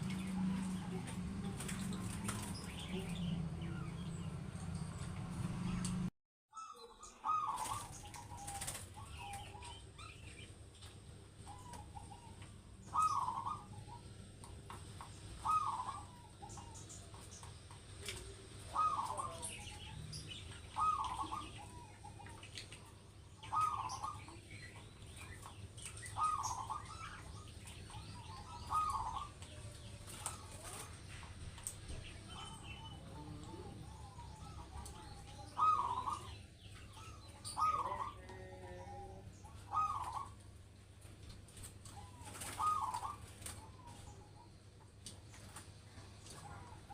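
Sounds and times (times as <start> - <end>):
small birds chirping: 0.0 - 46.9
dove cooing: 6.6 - 10.3, 11.4 - 14.3, 15.3 - 17.3, 18.0 - 22.5, 23.4 - 31.2, 31.8 - 40.4, 41.8 - 44.7.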